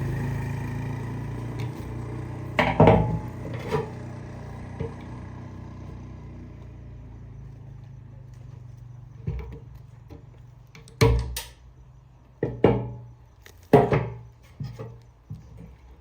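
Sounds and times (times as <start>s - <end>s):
hard knocks on metal: 2.6s - 3.6s, 12.4s - 13.1s.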